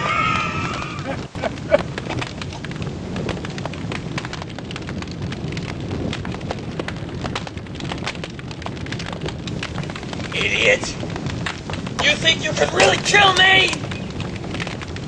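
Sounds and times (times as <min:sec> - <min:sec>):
fire crackling and popping: 0:00.0 - 0:15.0
fire rumbling: 0:00.0 - 0:15.0.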